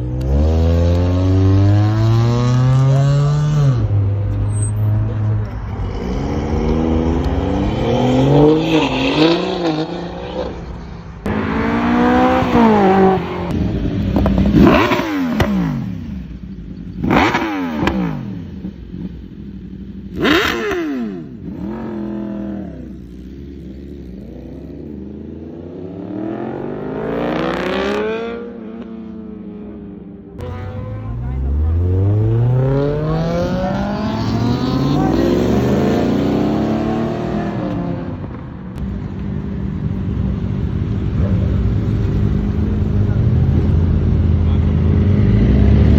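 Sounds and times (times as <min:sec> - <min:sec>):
car engine revving: 0:00.0 - 0:19.2, 0:30.4 - 0:38.8.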